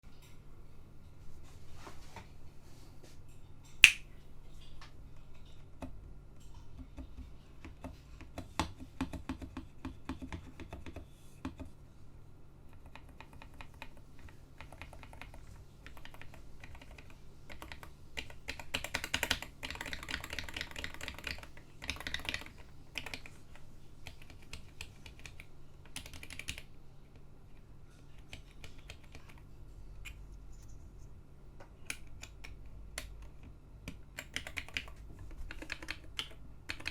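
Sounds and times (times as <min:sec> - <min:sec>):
mechanical keyboard typing: 0:06.8 - 0:11.7, 0:12.7 - 0:26.7, 0:28.2 - 0:29.4, 0:31.8 - 0:36.9.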